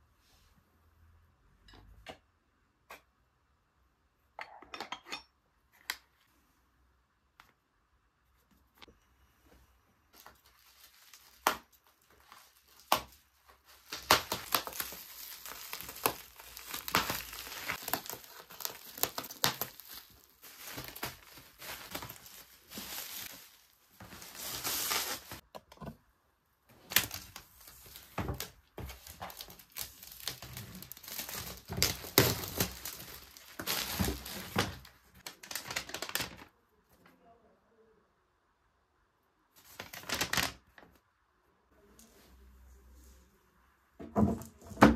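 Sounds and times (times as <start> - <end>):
crinkly material rustling: 10.0 - 25.5, 26.7 - 37.1, 39.6 - 41.0.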